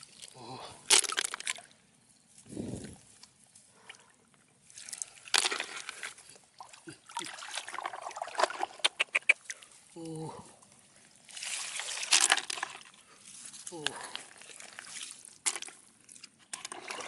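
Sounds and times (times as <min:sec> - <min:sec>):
water sloshing and splashing: 0:03.7 - 0:09.9, 0:10.6 - 0:17.0.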